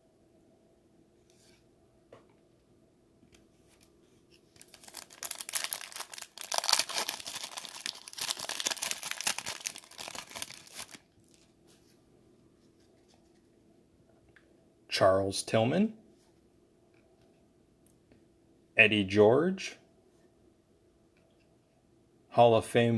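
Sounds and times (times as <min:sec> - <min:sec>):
wrapper crinkling and tearing: 0:03.7 - 0:11.6.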